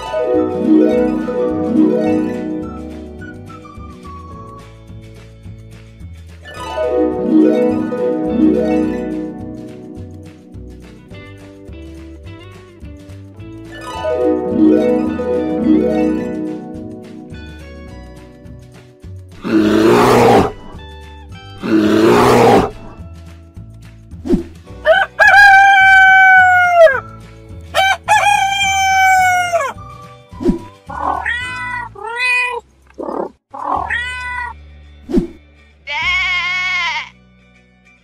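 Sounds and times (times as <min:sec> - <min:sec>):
light background music: 0:00.0 - 0:38.0
rooster crowing: 0:24.8 - 0:27.0, 0:27.8 - 0:29.8.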